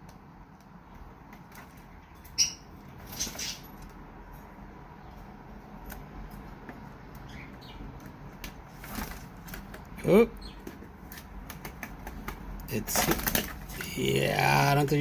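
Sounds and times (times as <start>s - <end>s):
light taps and scratches: 10.6s - 14.0s.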